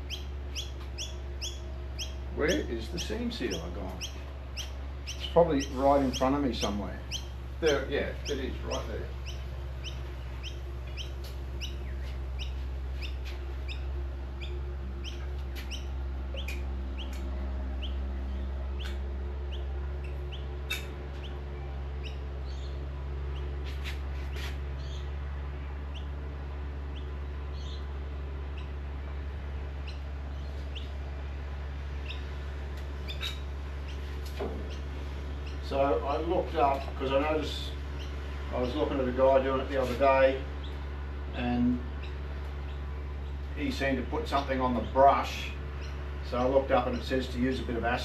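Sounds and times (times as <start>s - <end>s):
small bird chirping: 0.0s - 26.2s, 26.9s - 28.8s, 29.7s - 40.9s, 41.8s - 43.6s, 44.2s - 47.4s
steady low hum: 0.0s - 48.0s.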